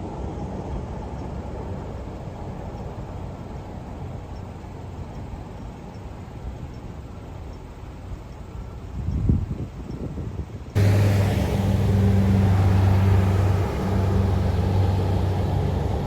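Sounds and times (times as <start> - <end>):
metro train rumble: 10.8 - 16.0.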